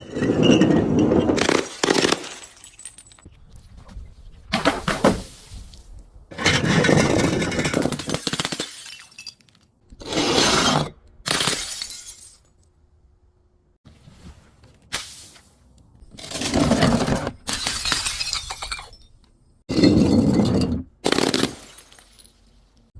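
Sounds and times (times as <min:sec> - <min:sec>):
glass bottles breaking: 0:00.4 - 0:03.3, 0:06.5 - 0:09.6, 0:11.3 - 0:12.5, 0:16.2 - 0:22.5.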